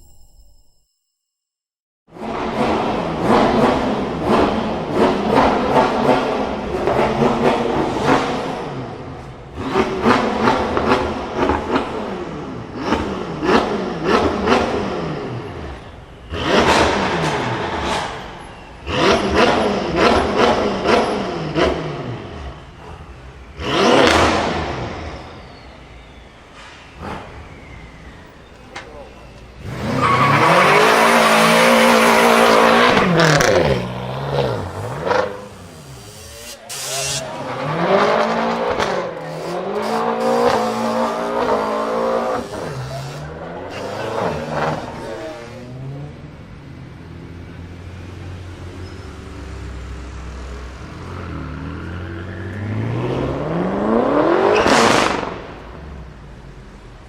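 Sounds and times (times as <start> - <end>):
car engine revving hard: 2.1 - 15.6, 16.3 - 22.8, 23.5 - 25.3, 29.6 - 46.2, 49.8 - 56.1.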